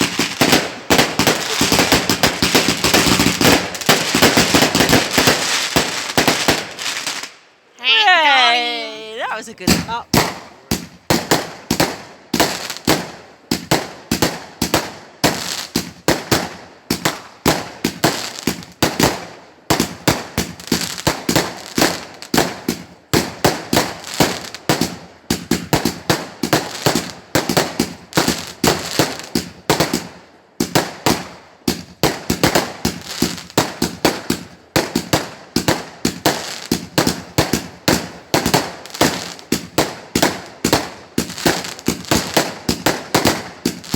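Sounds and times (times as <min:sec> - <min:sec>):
fireworks bangs: 0:00.0 - 0:07.1.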